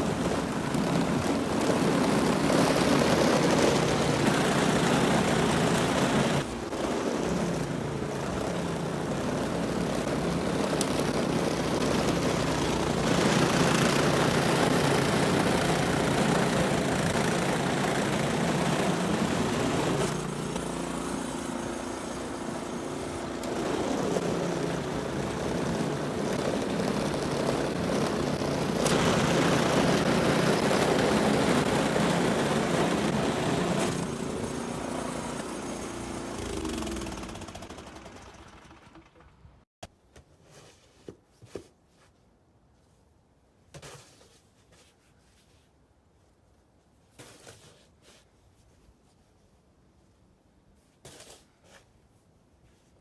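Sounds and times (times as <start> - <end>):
snowblower engine running: 0.0 - 39.6.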